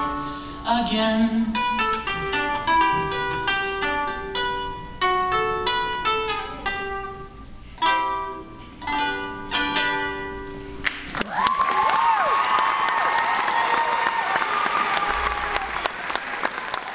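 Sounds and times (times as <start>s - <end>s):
ukulele strummed chords: 0.0s - 11.1s
audience applause: 10.8s - 16.9s.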